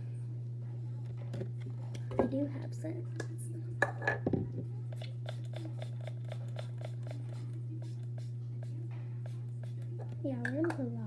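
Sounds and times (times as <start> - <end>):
steady low hum: 0.0 - 11.0
spray bottle pumping: 5.0 - 10.1.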